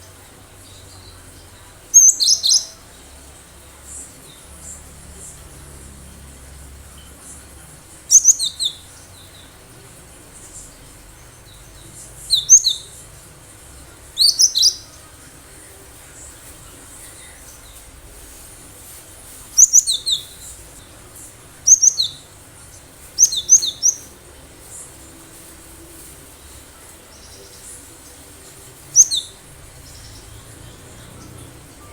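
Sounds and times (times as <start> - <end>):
bird singing high sharp notes: 29.0 - 30.6.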